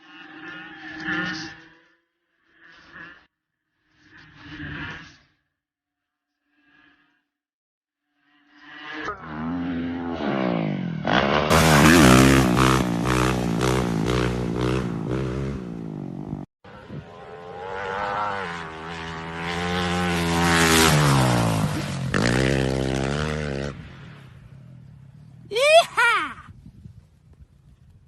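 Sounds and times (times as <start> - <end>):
dirt bike engines revving: 9.4 - 26.4.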